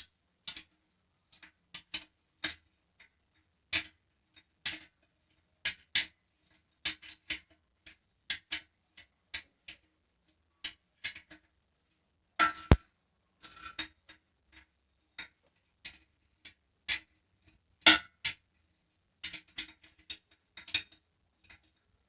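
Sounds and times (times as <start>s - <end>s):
sharp clicks and taps: 12.4s - 12.8s.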